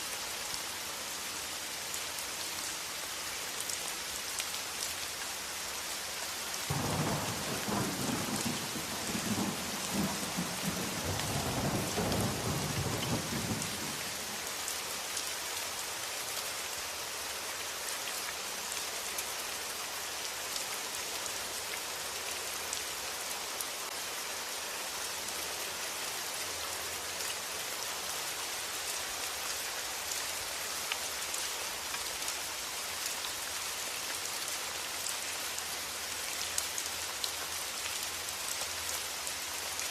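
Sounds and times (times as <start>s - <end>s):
steady rain falling: 0.0s - 39.9s
rolling thunder: 6.7s - 14.0s.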